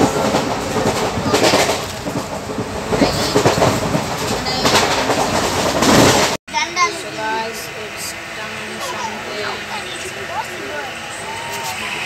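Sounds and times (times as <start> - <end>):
train rumbling and rattling: 0.0 - 12.0.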